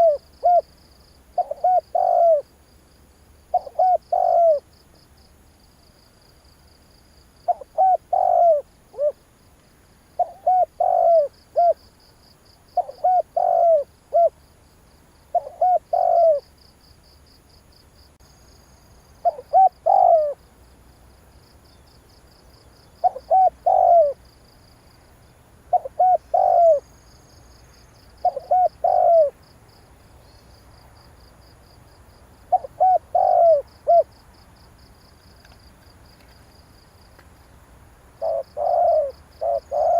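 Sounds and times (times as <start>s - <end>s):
dove cooing: 0.0s - 0.7s, 1.4s - 2.5s, 3.5s - 4.7s, 7.5s - 9.2s, 10.2s - 11.9s, 12.8s - 14.4s, 15.3s - 16.5s, 19.2s - 20.4s, 23.0s - 24.2s, 25.7s - 26.9s, 28.2s - 29.4s, 32.5s - 34.1s, 38.2s - 39.9s.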